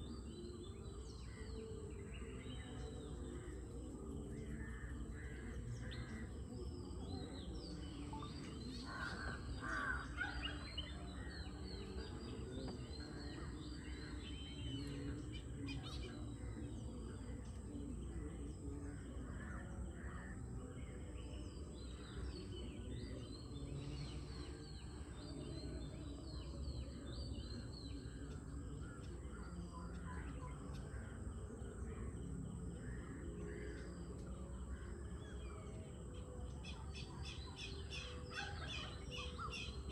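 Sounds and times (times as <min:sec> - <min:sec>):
birds chirping and whistling: 0:05.7 - 0:16.8, 0:33.7 - 0:39.9
crows cawing: 0:08.9 - 0:10.3.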